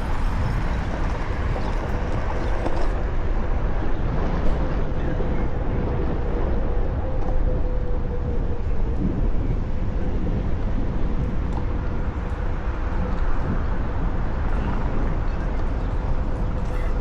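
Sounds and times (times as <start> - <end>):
electric board rolling noise: 0.0 - 3.0
wind rushing: 0.0 - 6.6.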